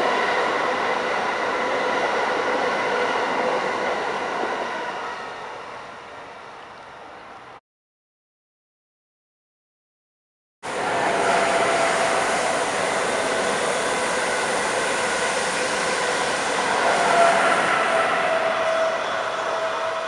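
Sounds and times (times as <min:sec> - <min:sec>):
train rushing past: 0:10.6 - 0:20.0.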